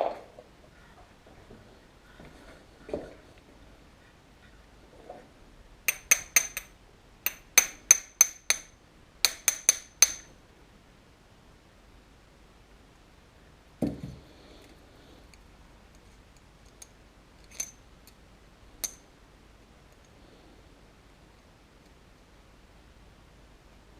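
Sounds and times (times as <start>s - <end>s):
ringing metal-on-metal taps: 5.9s - 6.7s.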